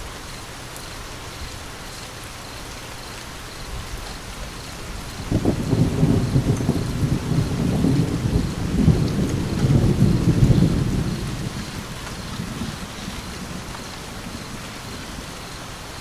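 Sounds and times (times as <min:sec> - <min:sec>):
rain hiss: 0:00.0 - 0:16.0
rolling thunder: 0:04.8 - 0:16.0.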